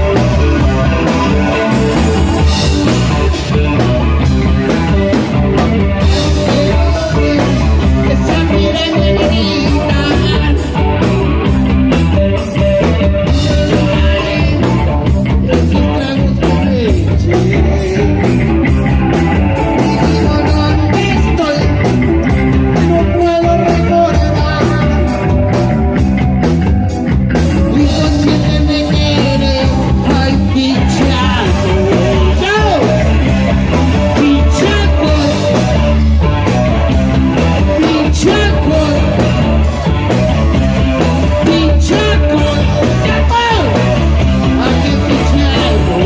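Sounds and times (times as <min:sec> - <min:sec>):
drum kit with cymbals: 0:00.0 - 0:46.0
electric guitar: 0:00.0 - 0:46.0
person singing: 0:06.0 - 0:11.1, 0:12.4 - 0:25.6, 0:27.6 - 0:36.1, 0:37.4 - 0:39.9, 0:41.0 - 0:46.0.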